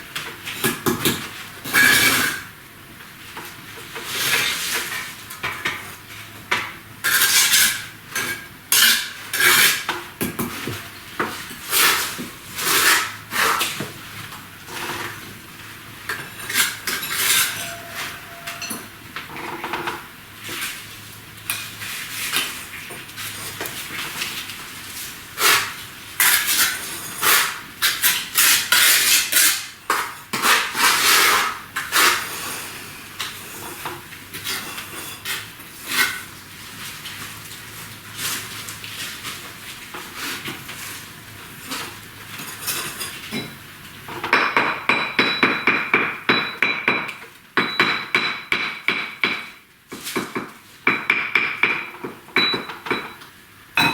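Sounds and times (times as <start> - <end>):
trowel scraping mortar: 11.7 - 13.8, 16.4 - 18.6, 25.4 - 32.6
trowel clinking against bricks: 52.4 - 53.9.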